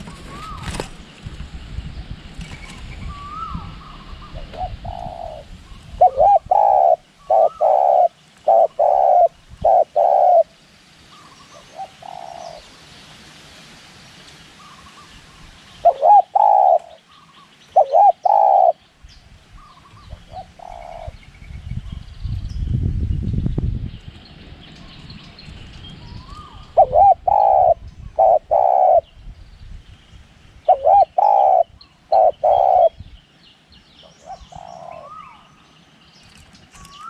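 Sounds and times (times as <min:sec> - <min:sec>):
dove cooing: 0:00.0 - 0:00.9, 0:03.1 - 0:10.5, 0:11.4 - 0:12.6, 0:15.8 - 0:17.1, 0:17.7 - 0:18.8, 0:19.6 - 0:21.2, 0:26.4 - 0:29.1, 0:30.7 - 0:33.0, 0:34.1 - 0:35.5.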